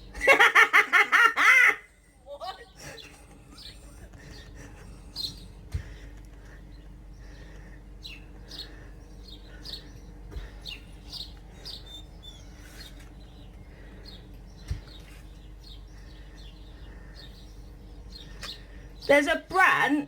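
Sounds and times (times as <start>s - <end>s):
small birds chirping: 0.0s - 20.0s
dull bump: 5.7s - 6.6s.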